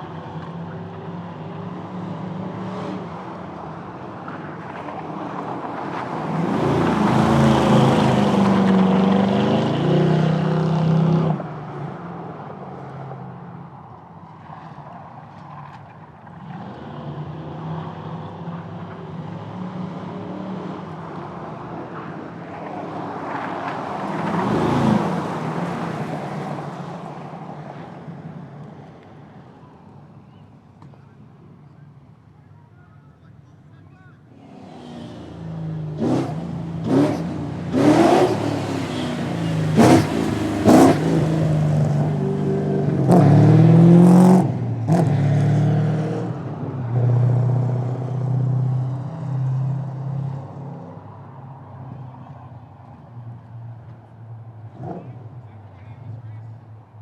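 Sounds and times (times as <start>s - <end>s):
car engines accelerating past: 0.2s - 13.6s, 34.3s - 56.2s.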